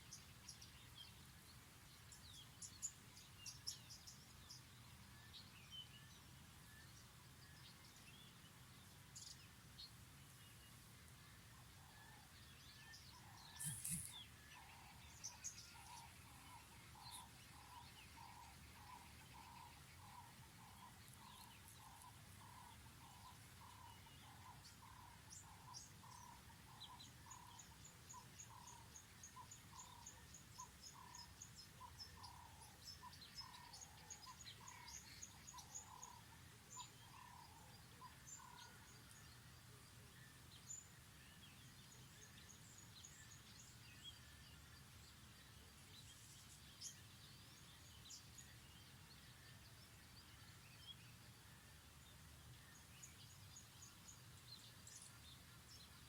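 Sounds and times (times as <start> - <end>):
faint birdsong: 0.0 - 56.0
high quick bird chirping: 13.6 - 14.2.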